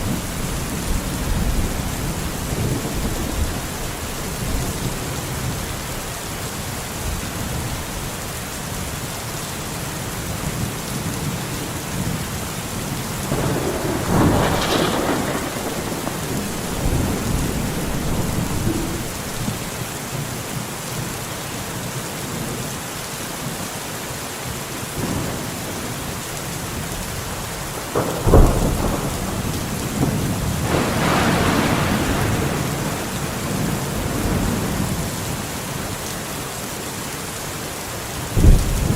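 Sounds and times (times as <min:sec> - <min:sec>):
thunder rolling: 0:00.0 - 0:05.8, 0:13.2 - 0:19.9, 0:27.8 - 0:35.2
steady rain: 0:00.0 - 0:38.9
sharp thunder crack: 0:13.3 - 0:19.7, 0:27.9 - 0:34.9.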